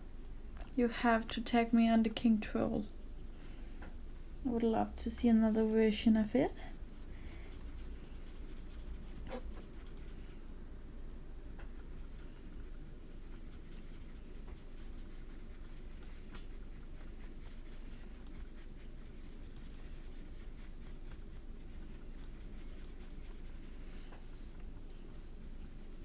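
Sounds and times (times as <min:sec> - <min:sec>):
low room hum: 0:00.0 - 0:26.0
crayon scratching on paper: 0:11.7 - 0:24.4.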